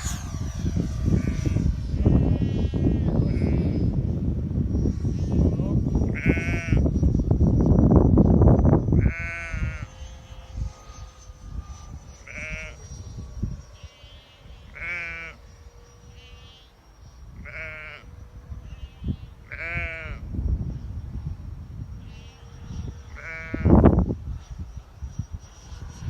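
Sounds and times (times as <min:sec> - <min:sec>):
wind buffeting microphone: 0:00.0 - 0:16.5, 0:17.2 - 0:26.0
faint steady whine: 0:00.0 - 0:26.0
sheep bleating: 0:02.0 - 0:03.7, 0:14.7 - 0:15.4, 0:17.4 - 0:18.1, 0:19.5 - 0:20.2.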